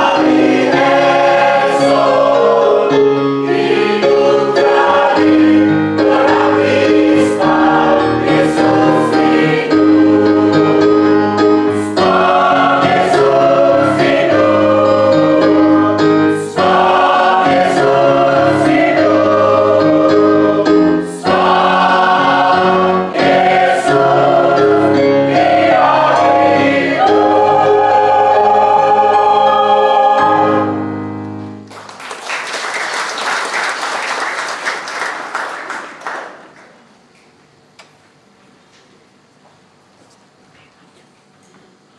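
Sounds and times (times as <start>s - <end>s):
church choir singing: 0.0s - 31.3s
applause: 31.6s - 36.9s.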